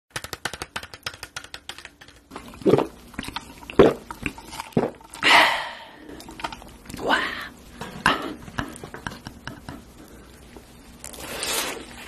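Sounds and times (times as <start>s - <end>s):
breathy sound: 5.2s - 6.4s.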